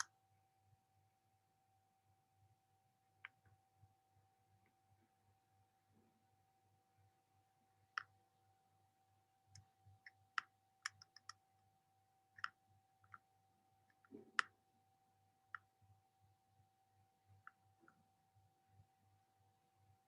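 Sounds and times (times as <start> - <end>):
faint steady hum: 0.0 - 20.0
faint clicks and taps: 9.5 - 11.4, 12.4 - 13.3, 13.9 - 14.6.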